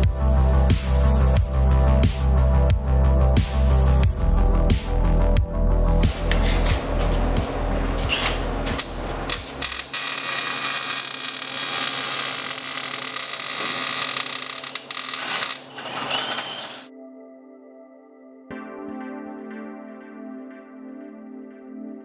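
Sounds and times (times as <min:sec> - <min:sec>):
power tool working metal: 0:06.0 - 0:16.9.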